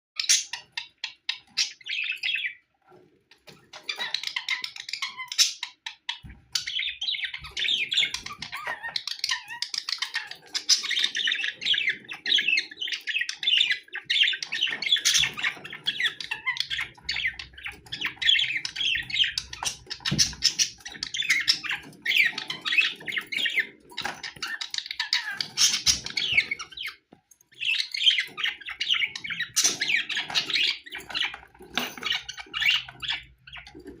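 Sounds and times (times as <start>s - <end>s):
budgerigars chattering and warbling: 0.2s - 34.0s.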